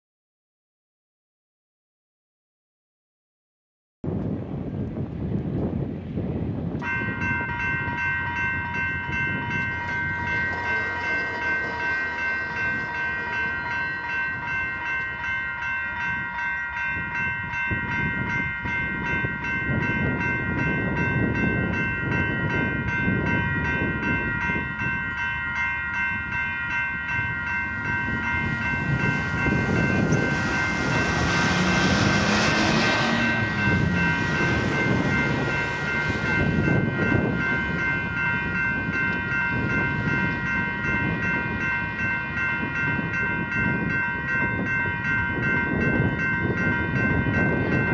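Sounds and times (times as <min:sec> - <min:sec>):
diesel locomotive engine rumble: 0:04.1 - 0:47.9
high-pitched whine: 0:27.2 - 0:38.6.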